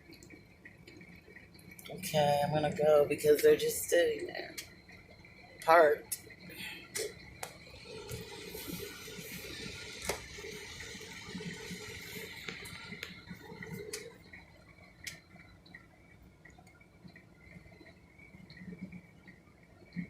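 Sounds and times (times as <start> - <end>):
raindrops ticking: 0.0 - 20.0
rain and wet road noise: 7.4 - 14.1.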